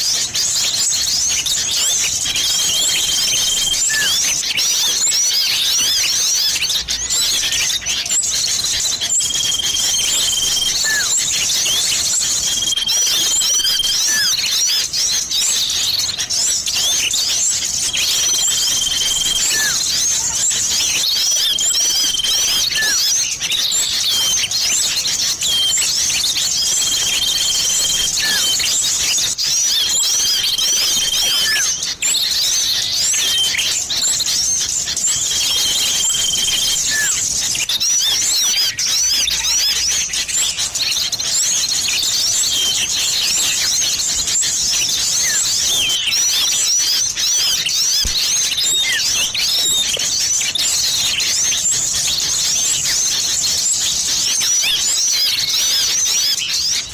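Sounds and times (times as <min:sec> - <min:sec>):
small birds chirping: 0:00.0 - 0:56.9
long level whistles: 0:02.3 - 0:04.4, 0:07.7 - 0:14.9, 0:17.9 - 0:20.3, 0:20.9 - 0:23.3, 0:25.2 - 0:39.8.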